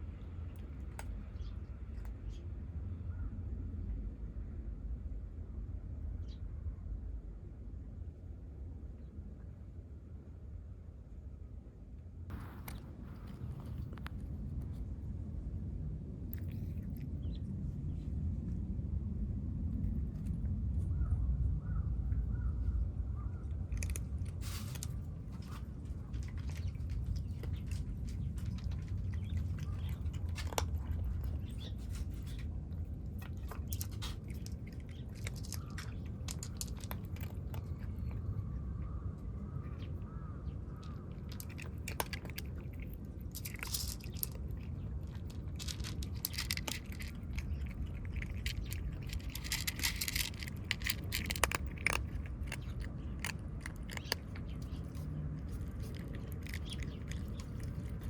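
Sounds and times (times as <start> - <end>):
kittens crunching food: 0.0 - 2.6, 12.3 - 21.0, 22.9 - 58.0
low rumble: 12.3 - 58.0.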